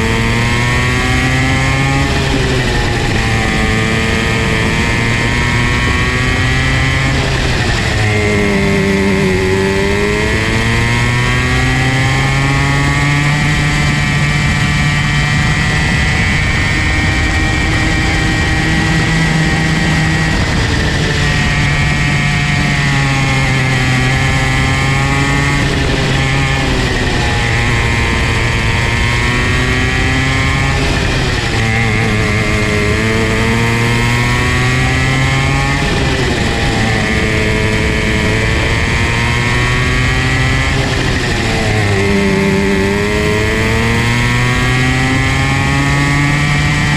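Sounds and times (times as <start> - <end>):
go-kart engine revving: 0.0 - 46.9.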